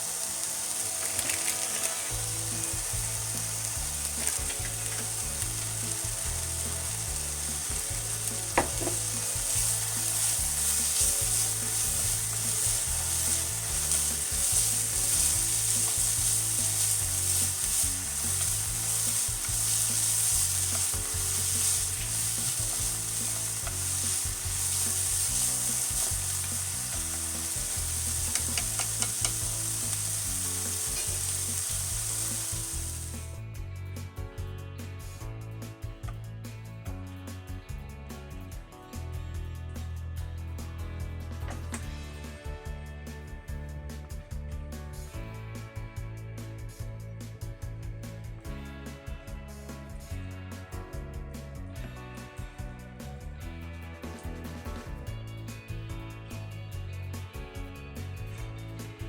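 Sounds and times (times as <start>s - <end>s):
vegetables sizzling in a frying pan: 0.0s - 33.4s
utensil scraping while stirring: 7.5s - 33.2s
utensil knocking against pan: 8.6s - 9.7s, 23.6s - 29.5s.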